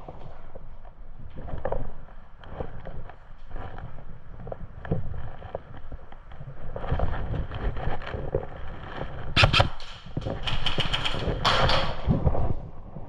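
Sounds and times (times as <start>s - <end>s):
handling noise: 1.3s - 13.0s
footsteps: 6.8s - 13.0s
airsoft gun rapid cracks: 9.4s - 12.1s.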